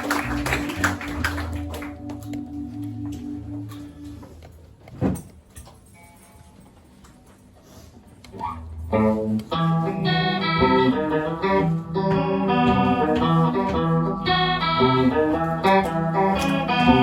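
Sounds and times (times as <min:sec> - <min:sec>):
guitar with organ-like chords: 0:00.0 - 0:04.4, 0:08.5 - 0:17.0
rock band playing instrumental: 0:00.0 - 0:04.4, 0:09.0 - 0:17.0.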